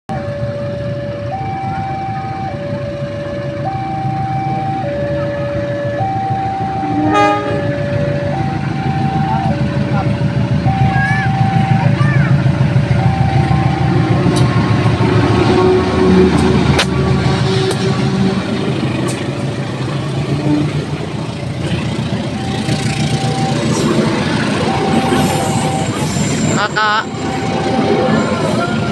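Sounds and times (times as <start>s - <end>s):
large engine droning: 0.1s - 28.9s
two-tone crossing alarm: 0.1s - 28.9s
short horn blast: 6.8s - 7.8s.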